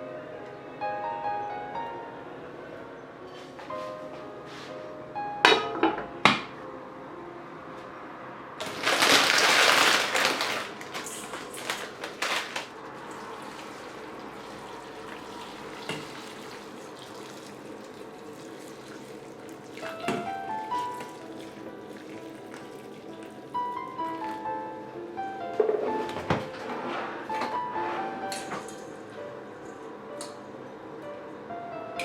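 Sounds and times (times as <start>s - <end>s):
splashes and clatters in sink: 8.6s - 24.4s
water running from kitchen tap: 8.6s - 24.7s.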